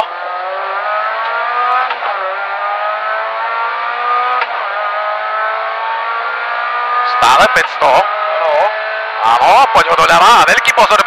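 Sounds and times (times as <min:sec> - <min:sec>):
car engine at full throttle: 0:00.0 - 0:11.0.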